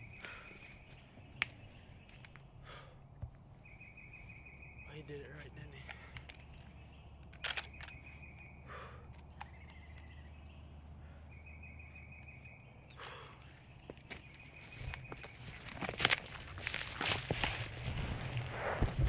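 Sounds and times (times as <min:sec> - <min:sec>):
songbird trilling: 0:03.5 - 0:15.6
rustles in leaves and brush: 0:14.1 - 0:19.0.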